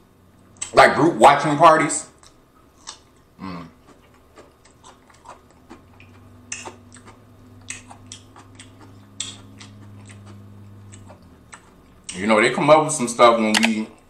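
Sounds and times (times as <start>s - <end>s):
low steady hum: 0.0s - 14.0s
wet crunchy chewing: 2.2s - 12.4s.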